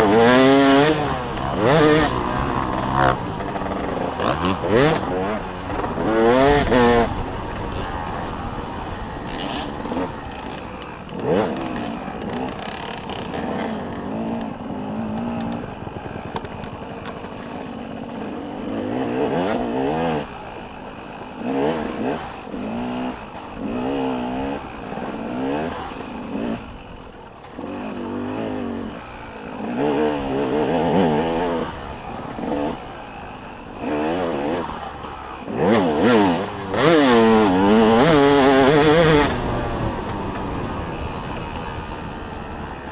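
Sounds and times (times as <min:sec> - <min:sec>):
motocross bike engines revving: 0:00.0 - 0:42.9.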